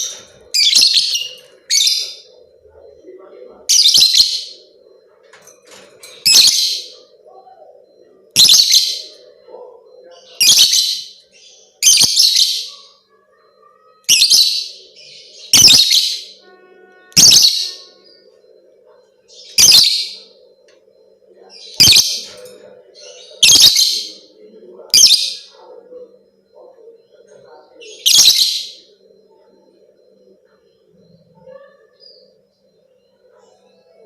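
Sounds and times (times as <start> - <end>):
faint steady hum: 0.0 - 10.4, 14.7 - 23.4.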